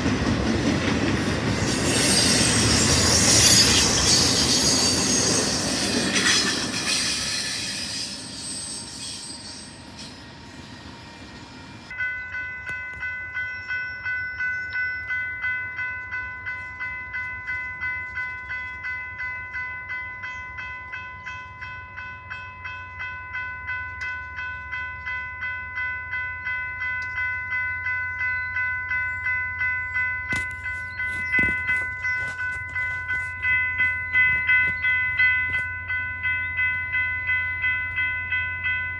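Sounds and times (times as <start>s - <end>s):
train rumble: 0.0s - 13.4s, 15.0s - 38.8s
bell ringing: 11.9s - 38.9s.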